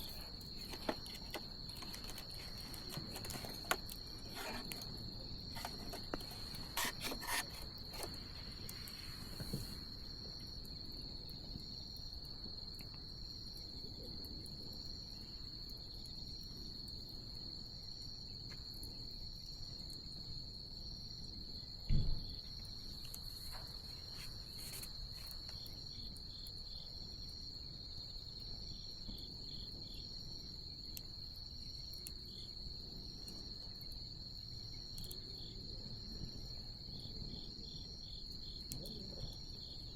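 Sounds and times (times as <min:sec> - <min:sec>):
bonfire wood crackling: 0:00.0 - 0:10.6
night insects trilling: 0:00.0 - 0:39.9.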